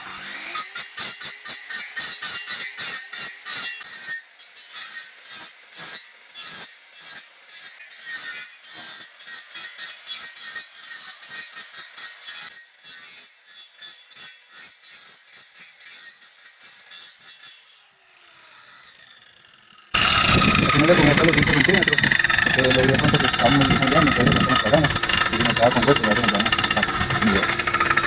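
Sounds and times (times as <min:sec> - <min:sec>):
hand saw cutting bamboo: 0:20.0 - 0:28.0.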